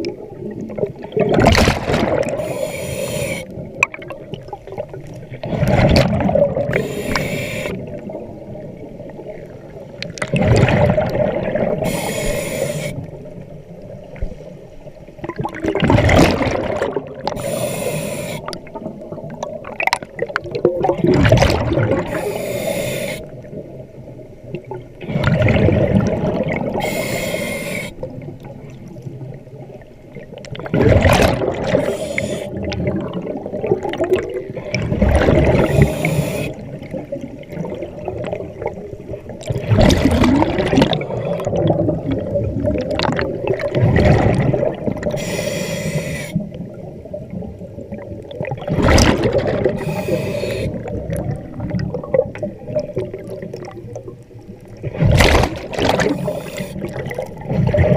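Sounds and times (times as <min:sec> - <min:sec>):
exhaled bubbles rushing: 0:00.0 - 0:02.6, 0:03.5 - 0:12.0, 0:15.2 - 0:17.4, 0:18.4 - 0:22.4, 0:24.6 - 0:26.9, 0:30.1 - 0:45.2, 0:46.4 - 0:57.9
diver breathing through regulator: 0:02.3 - 0:03.6, 0:06.7 - 0:08.0, 0:11.8 - 0:13.1, 0:17.3 - 0:18.6, 0:22.0 - 0:23.4, 0:26.8 - 0:28.1, 0:31.7 - 0:32.7, 0:35.5 - 0:36.7, 0:45.0 - 0:46.5, 0:49.7 - 0:51.0, 0:55.9 - 0:57.0.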